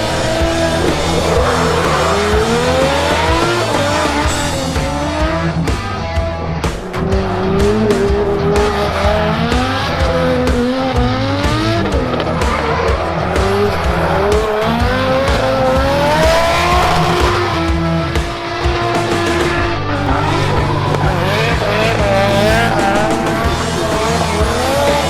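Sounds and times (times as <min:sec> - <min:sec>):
tyres squealing: 0:00.0 - 0:04.9, 0:11.6 - 0:25.0
car engine revving: 0:00.0 - 0:25.0.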